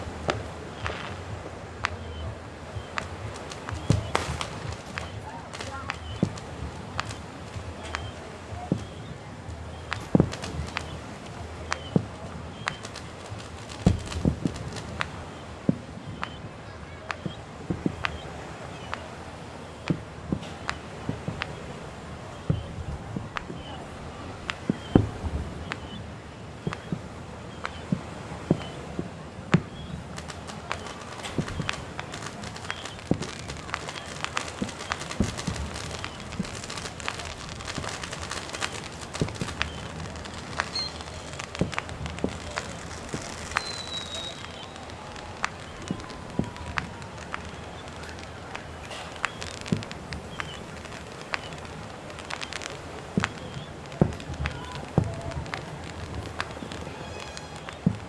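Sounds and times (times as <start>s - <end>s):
crackling pops: 0.0s - 58.0s
fireworks booming and cracking: 0.0s - 58.0s
steady hiss: 0.0s - 58.0s.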